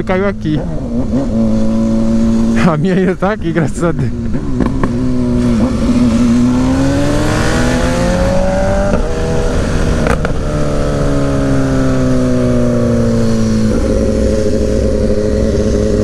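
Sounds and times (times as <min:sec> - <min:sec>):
motorcycle engine: 0:00.0 - 0:16.0
wind rush: 0:04.1 - 0:16.0.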